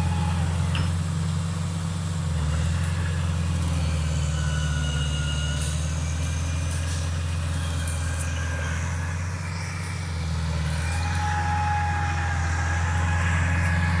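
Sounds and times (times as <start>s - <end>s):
bulldozer diesel engine droning: 0.0s - 14.0s
faint high clicks and squeaks: 2.8s - 12.3s.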